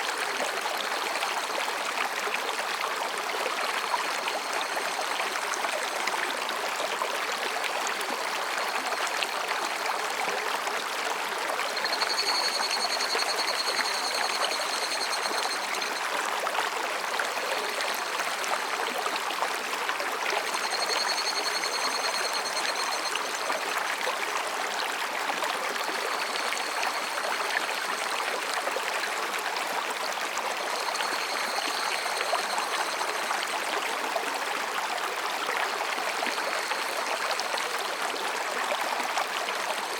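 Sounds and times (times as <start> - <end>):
stream babbling over rocks: 0.0 - 39.9
cicadas trilling: 11.7 - 16.1, 20.4 - 23.6, 25.9 - 27.9, 30.6 - 33.5.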